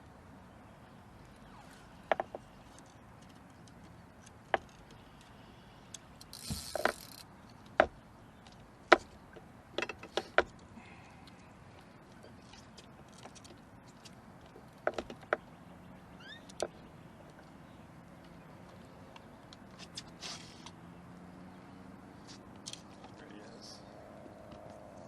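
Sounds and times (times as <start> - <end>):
fishing gear knocking and clicking: 2.1 - 5.3, 6.2 - 10.6
brief hiss: 20.2 - 20.7.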